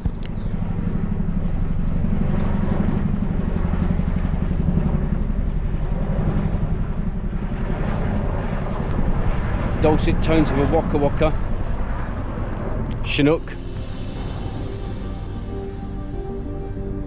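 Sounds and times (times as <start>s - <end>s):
helicopter rotor blades beating: 0.0s - 17.0s.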